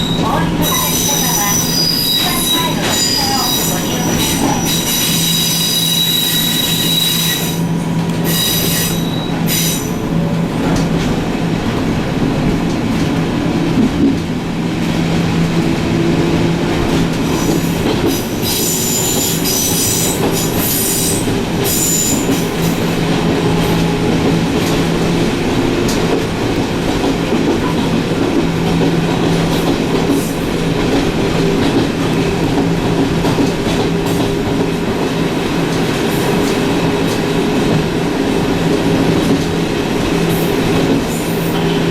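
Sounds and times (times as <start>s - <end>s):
high wheel squeal: 0.0s - 7.7s, 8.3s - 10.0s.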